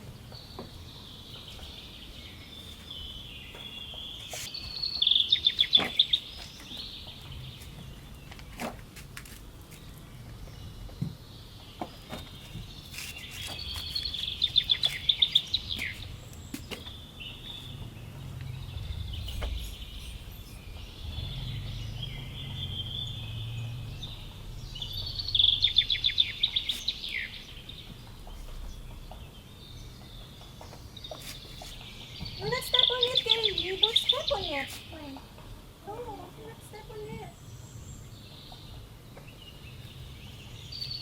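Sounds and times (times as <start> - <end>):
songbird singing: 0.0 - 9.0, 9.6 - 41.0
bird chirps: 0.2 - 8.4, 9.8 - 35.3
low background rumble: 15.5 - 30.2.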